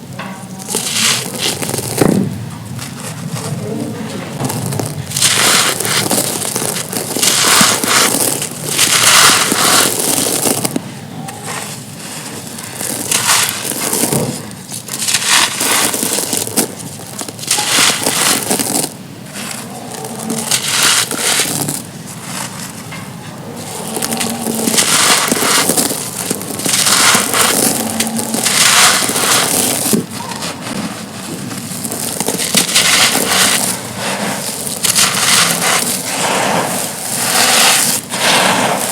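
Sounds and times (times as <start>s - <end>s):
stone slabs crumbling and crunching: 12.3s - 38.9s.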